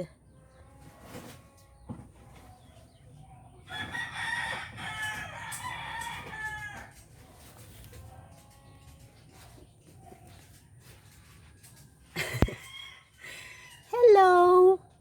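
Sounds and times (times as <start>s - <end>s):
rooster crowing: 3.7s - 7.0s, 12.2s - 14.0s.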